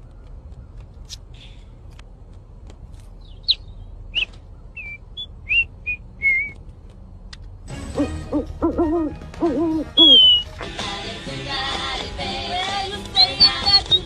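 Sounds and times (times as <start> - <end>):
small bird chirping: 3.1 - 6.6, 9.9 - 10.5, 13.1 - 14.0
low hooting calls: 7.9 - 10.5.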